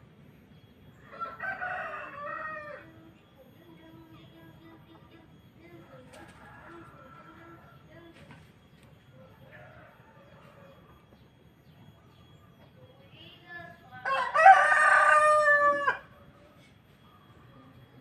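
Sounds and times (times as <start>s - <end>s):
rooster crowing: 1.0s - 3.0s, 9.2s - 11.1s, 13.9s - 16.2s.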